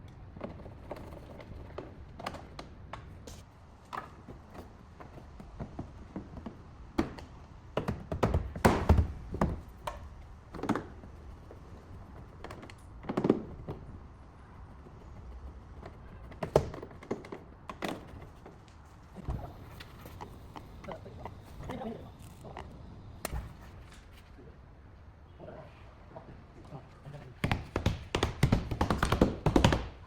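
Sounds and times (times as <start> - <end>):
knocks and taps: 27.4 - 30.0.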